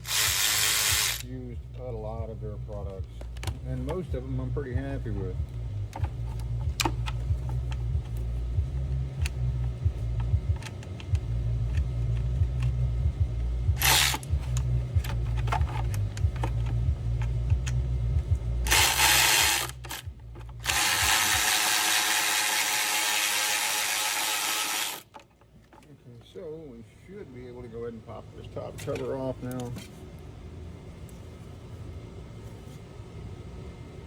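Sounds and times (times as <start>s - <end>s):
power tool running: 0.0s - 1.3s, 13.8s - 14.6s, 18.6s - 25.1s
low steady hum: 0.0s - 34.0s.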